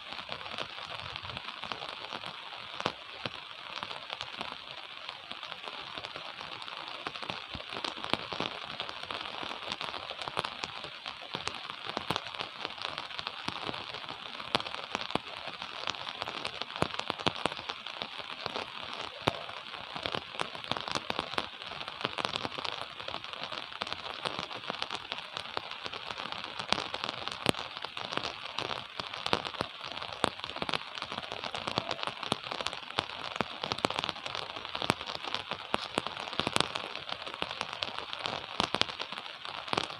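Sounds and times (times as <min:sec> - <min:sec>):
gentle rain falling: 0:00.0 - 0:39.9
raindrops ticking: 0:00.0 - 0:39.9.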